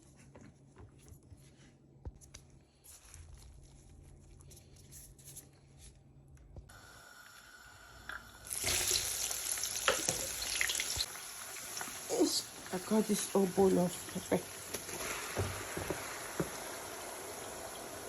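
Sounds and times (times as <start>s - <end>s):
food sizzling in a pot: 6.7s - 18.0s.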